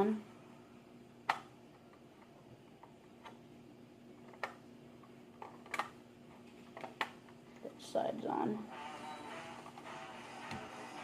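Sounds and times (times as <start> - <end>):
faint steady hum: 0.0 - 11.0
plastic parts clicking: 5.4 - 6.0.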